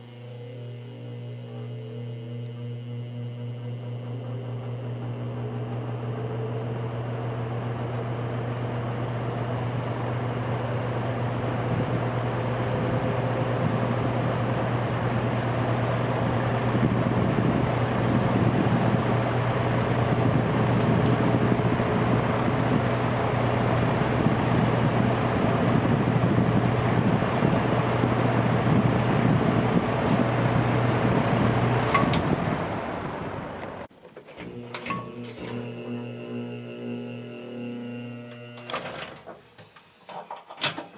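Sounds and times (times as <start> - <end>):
fan motor hum and air rush: 0.0 - 39.0
fan switch clicks: 31.8 - 32.6.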